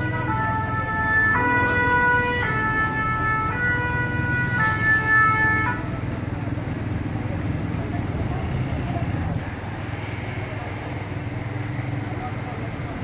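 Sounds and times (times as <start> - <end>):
two-tone emergency siren: 0.0 - 5.9
low rumble of engine and traffic: 0.0 - 13.0.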